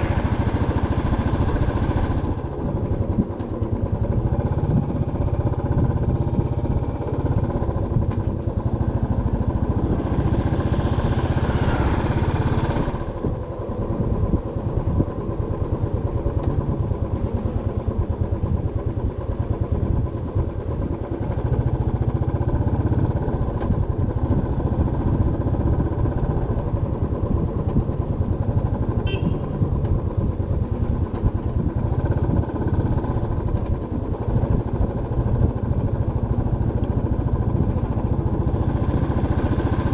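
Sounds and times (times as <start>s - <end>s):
motorcycle engine running: 0.0s - 39.9s
road and wind noise: 0.0s - 39.9s
rush of hiss: 9.8s - 13.4s, 38.4s - 39.9s.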